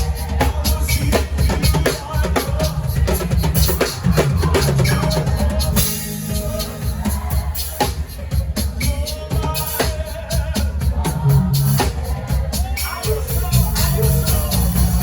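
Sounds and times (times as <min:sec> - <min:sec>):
worship band music: 0:00.0 - 0:15.0
heavy bass line: 0:03.5 - 0:15.0.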